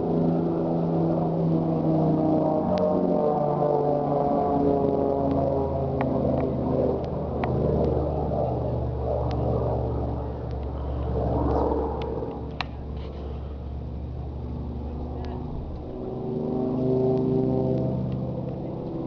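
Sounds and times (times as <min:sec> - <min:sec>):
aircraft engine droning: 0:00.0 - 0:19.0
steady low hum: 0:00.0 - 0:19.0
faint clicks: 0:10.4 - 0:10.7, 0:12.0 - 0:13.2.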